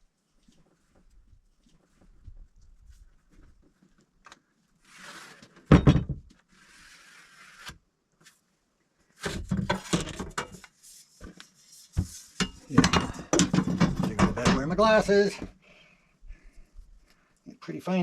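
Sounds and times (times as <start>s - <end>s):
knocks and clatters: 12.0s - 15.0s.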